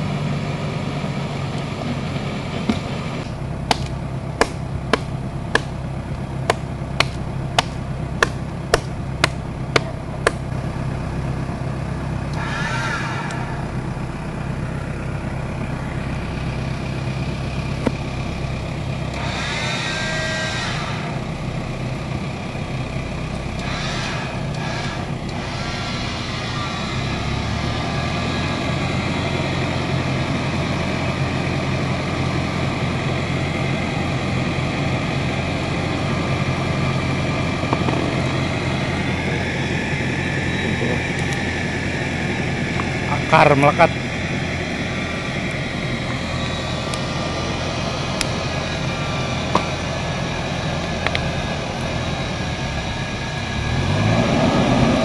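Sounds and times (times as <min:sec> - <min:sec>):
diesel engine idling: 0:00.0 - 0:55.0
sharp knocks: 0:03.7 - 0:05.8, 0:06.4 - 0:10.4.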